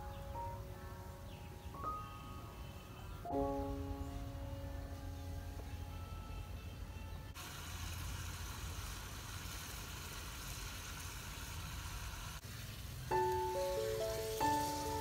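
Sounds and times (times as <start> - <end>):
music: 0.0 - 7.4, 13.1 - 15.0
food sizzling in a wok: 7.4 - 15.0.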